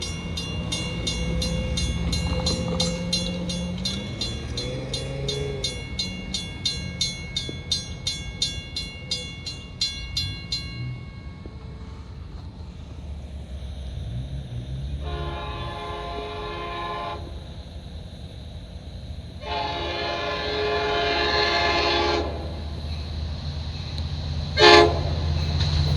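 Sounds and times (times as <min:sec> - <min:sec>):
railroad crossing bell ringing: 0:00.0 - 0:13.0, 0:19.4 - 0:25.9
diesel train rumbling past: 0:00.0 - 0:25.9.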